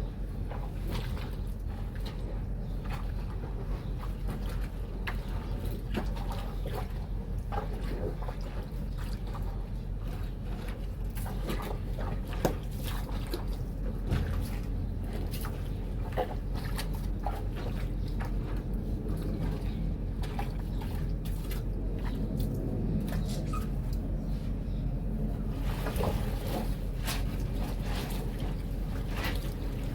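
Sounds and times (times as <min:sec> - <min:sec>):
steady low rumble: 0:00.0 - 0:29.9
water sloshing and splashing: 0:00.0 - 0:29.9.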